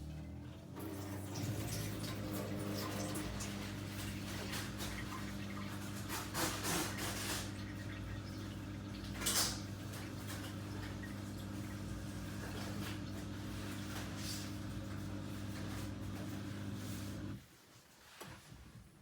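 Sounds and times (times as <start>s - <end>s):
dishwasher motor hum: 0.0s - 17.4s
water sloshing and spraying: 0.8s - 16.0s.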